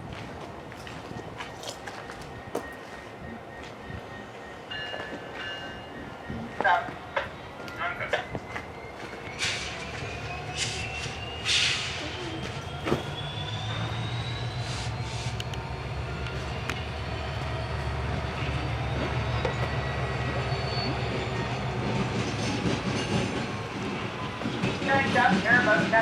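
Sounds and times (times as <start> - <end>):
train engine rumble: 0.0 - 26.0
wheel squeal: 8.8 - 15.6, 16.4 - 23.5.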